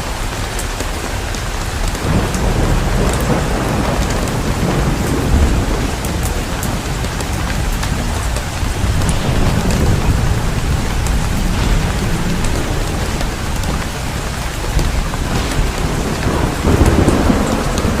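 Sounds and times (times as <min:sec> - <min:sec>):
heavy rain pouring: 0:00.0 - 0:18.0
low rumble: 0:07.7 - 0:18.0.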